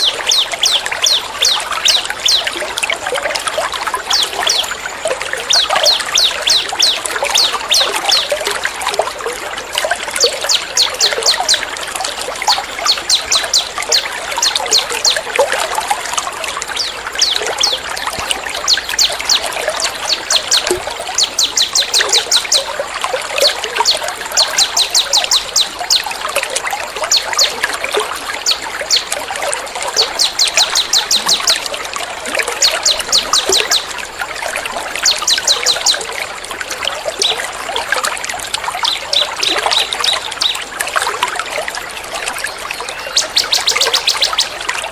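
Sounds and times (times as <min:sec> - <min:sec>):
bird chirping trills: 0:00.0 - 0:02.6, 0:04.0 - 0:08.4, 0:12.5 - 0:15.3, 0:16.7 - 0:22.8, 0:23.4 - 0:26.1, 0:29.9 - 0:31.6, 0:42.8 - 0:44.6
running water trickling: 0:00.0 - 0:44.9.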